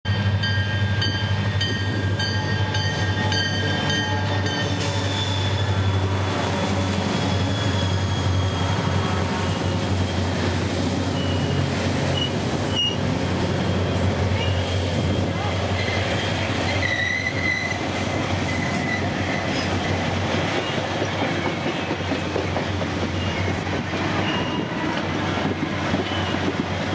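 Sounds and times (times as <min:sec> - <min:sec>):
locomotive bell ringing: 0:00.1 - 0:06.0
train wheel squeals: 0:00.1 - 0:26.7
diesel locomotive engine running: 0:00.1 - 0:26.9.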